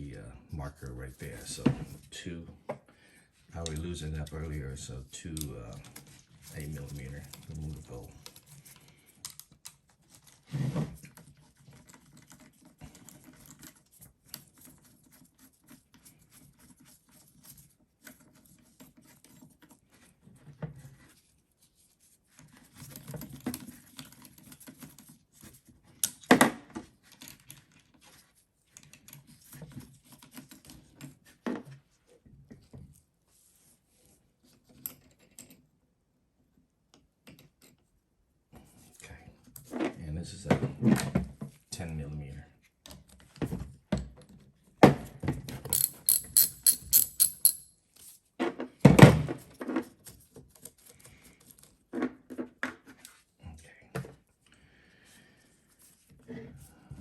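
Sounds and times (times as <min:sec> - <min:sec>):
hand tools clicking on bolts: 0:45.7 - 0:47.7
metal parts knocking: 0:45.7 - 0:47.7.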